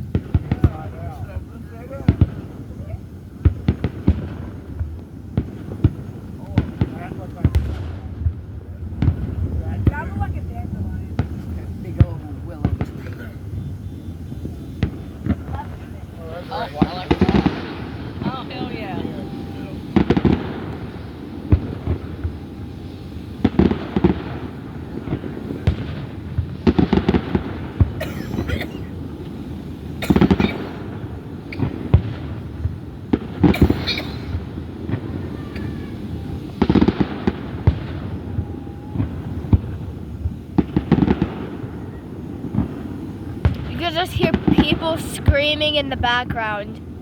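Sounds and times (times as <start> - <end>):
distant fireworks rumble: 0.0 - 47.0
fireworks shells bursting: 11.1 - 47.0.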